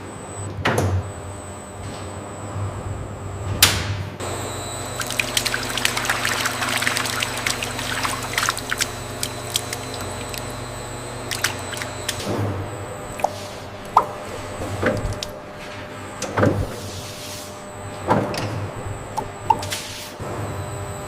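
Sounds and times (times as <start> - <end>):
low machine hum: 0.0 - 16.8
liquid pouring and dripping: 4.9 - 12.3.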